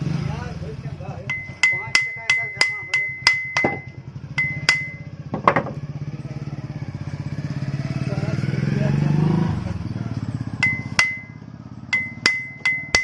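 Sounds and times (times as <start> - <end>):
hammer tapping on metal: 1.3 - 5.8, 10.6 - 13.0
soft knock: 5.3 - 5.8.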